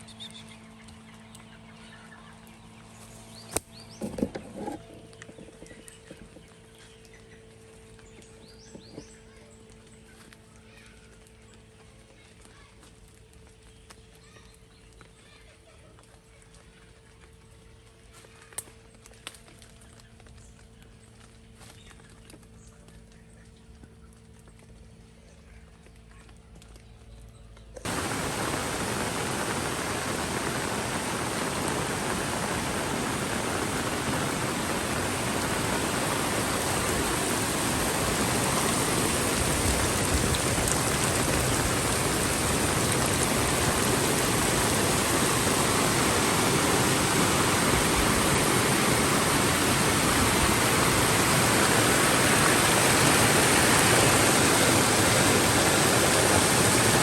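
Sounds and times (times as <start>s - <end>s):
heavy rain falling: 27.9s - 57.0s.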